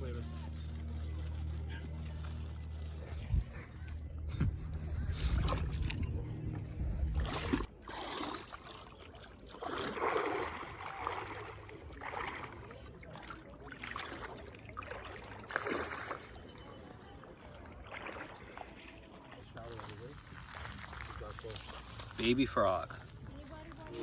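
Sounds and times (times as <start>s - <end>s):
kayak paddle strokes splashing: 0.1s - 24.0s
wind buffeting microphone: 3.1s - 7.7s.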